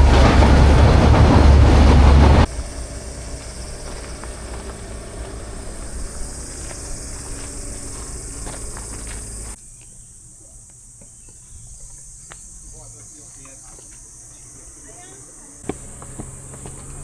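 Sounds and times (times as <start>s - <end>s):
low rumble: 0.0s - 9.6s
insects buzzing: 2.4s - 17.0s.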